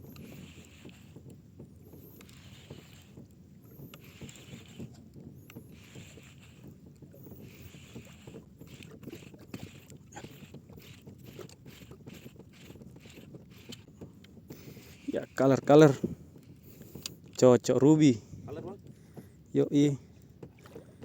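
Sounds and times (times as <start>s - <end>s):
water lapping against boat hull: 0.0s - 21.0s.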